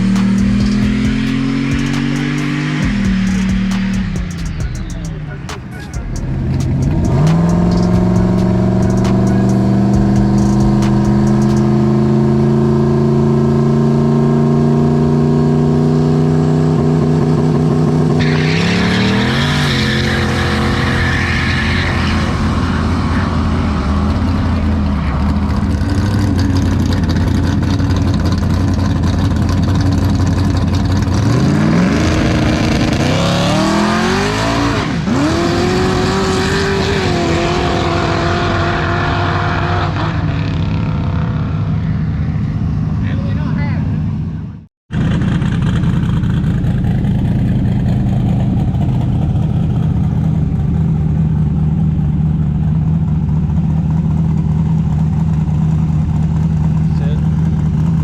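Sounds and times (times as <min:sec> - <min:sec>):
hissing noise: 0:00.0 - 0:11.7
race car engine accelerating: 0:00.0 - 0:42.8.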